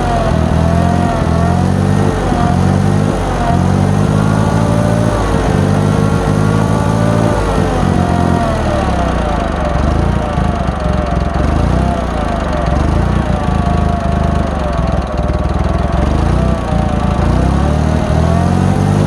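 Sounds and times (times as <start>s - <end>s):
tractor engine running unevenly: 0.0s - 19.0s.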